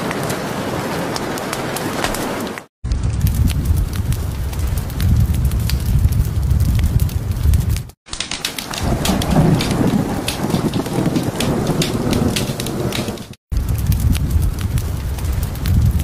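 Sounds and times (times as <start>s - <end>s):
heavy rain: 0.0s - 16.0s
fireplace crackle: 1.1s - 16.0s
thunder rumble: 2.8s - 8.0s, 8.6s - 16.0s.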